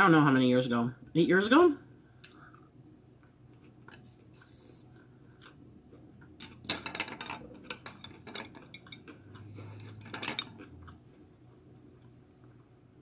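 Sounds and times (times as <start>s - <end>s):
dishes and utensils clinking: 6.4s - 10.7s.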